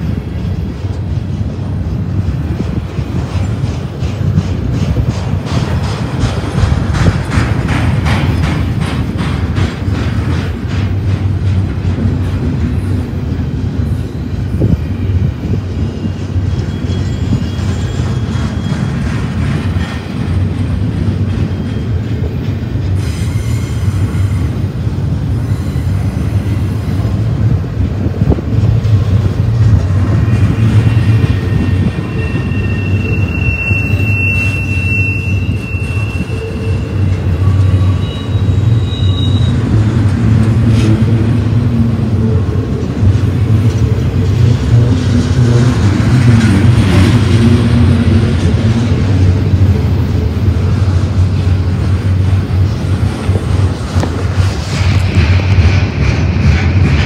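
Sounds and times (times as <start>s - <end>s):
train wheels rumbling on rails: 0.0s - 57.0s
high wheel squeal: 13.8s - 20.7s, 21.3s - 22.3s, 23.0s - 24.7s, 25.3s - 27.1s, 30.0s - 40.1s.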